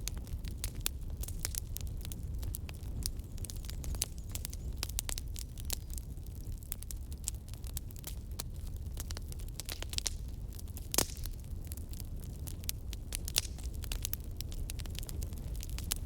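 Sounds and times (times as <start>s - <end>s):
fire popping: 0.0s - 16.0s
low rumble of flames: 0.0s - 16.0s
wood fire crackling: 0.0s - 16.0s.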